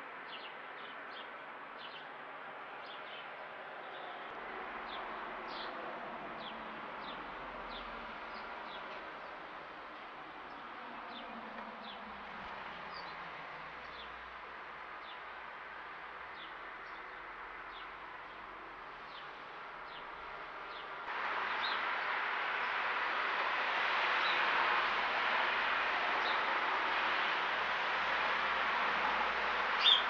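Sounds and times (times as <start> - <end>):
small bird chirping: 29.8 - 30.0.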